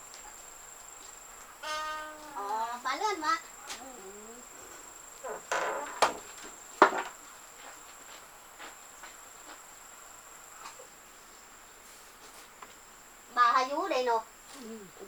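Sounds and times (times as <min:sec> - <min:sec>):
high-pitched insect drone: 0:01.6 - 0:04.6.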